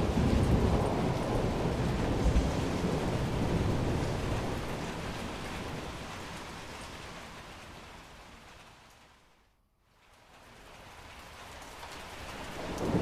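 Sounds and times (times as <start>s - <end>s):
thunder rumbling: 0.0s - 6.6s, 12.6s - 13.0s
steady rain: 0.0s - 13.0s.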